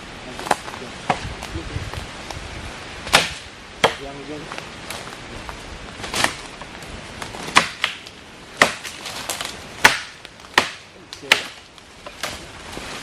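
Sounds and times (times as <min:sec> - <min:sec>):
blade chopping log: 0:03.1 - 0:04.1, 0:07.2 - 0:12.4.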